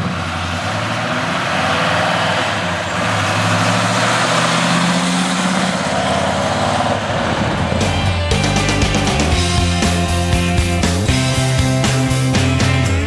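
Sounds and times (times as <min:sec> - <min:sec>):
car engine passing by: 0:00.0 - 0:08.9.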